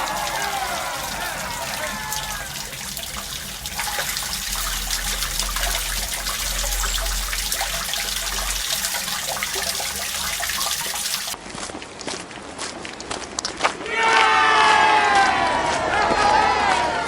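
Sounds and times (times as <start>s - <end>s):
water running and splashing: 0.0s - 11.4s.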